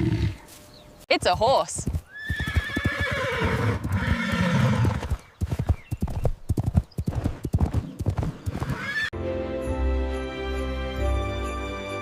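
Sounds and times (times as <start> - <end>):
horse hooves clip-clopping: 0.5 - 8.8
horse whinnying: 2.1 - 5.1, 8.6 - 9.1
soft music: 9.2 - 12.0.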